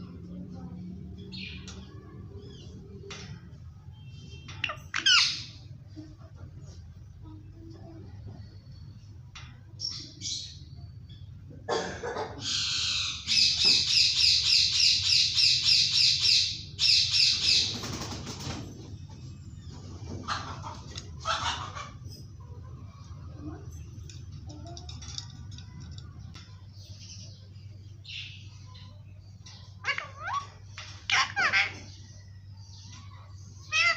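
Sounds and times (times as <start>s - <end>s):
low steady hum: 0.0s - 33.9s
parakeet squawking calls: 4.6s - 5.6s, 29.5s - 32.2s, 33.6s - 33.9s.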